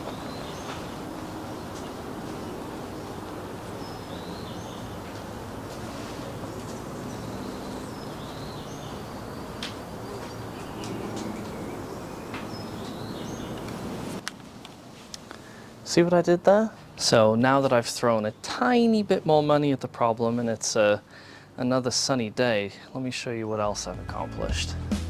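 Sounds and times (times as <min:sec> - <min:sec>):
steady outdoor hiss: 0:00.0 - 0:25.0
birds chirping: 0:06.2 - 0:14.0.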